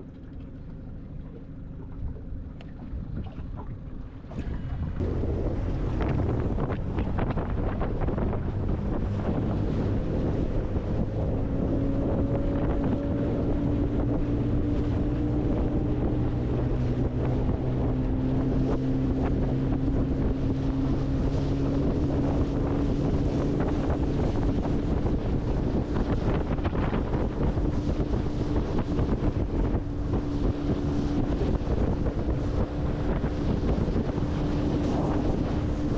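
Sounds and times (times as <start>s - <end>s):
water knocking against hull: 0.0s - 10.0s
boat motor humming: 0.0s - 35.9s
wind buffeting microphone: 0.0s - 35.9s.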